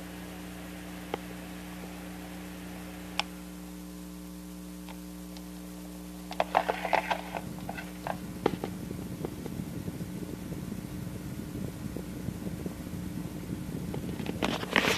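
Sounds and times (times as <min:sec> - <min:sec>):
electric fan humming: 0:00.0 - 0:14.9
fan rattling: 0:06.2 - 0:14.9.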